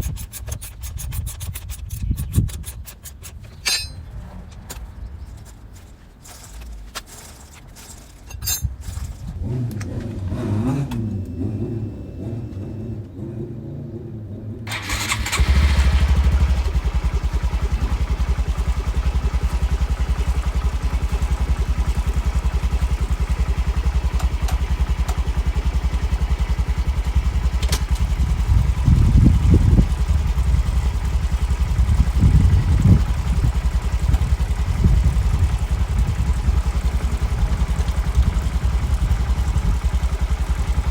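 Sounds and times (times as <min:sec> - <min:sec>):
motorcycle engine idling and revving: 0:00.0 - 0:40.9
handling clinks: 0:03.1 - 0:04.2, 0:05.3 - 0:09.3.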